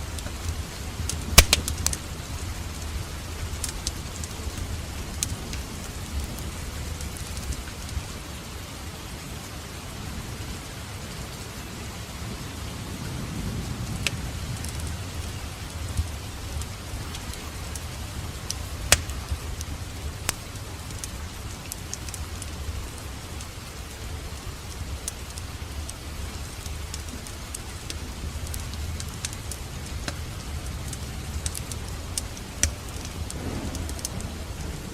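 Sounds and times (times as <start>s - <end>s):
wood fire crackling: 0.0s - 9.6s, 12.0s - 34.9s
sharp pop of fire: 1.4s - 2.0s, 18.9s - 19.4s.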